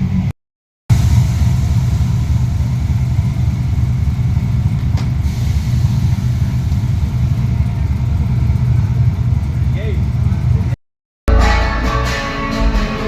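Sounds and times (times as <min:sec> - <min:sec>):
vehicle engine rumbling: 0:00.9 - 0:10.8.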